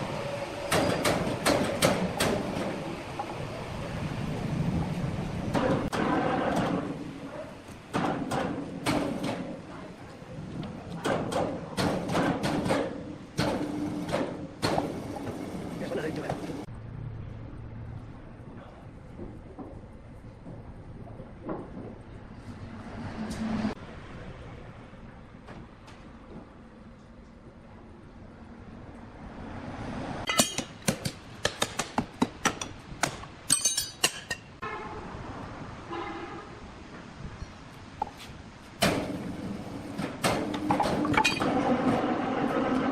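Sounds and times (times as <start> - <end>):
sharp knocks and clacks: 30.3 - 33.3
sharp metallic clinks and knocks: 33.5 - 34.5.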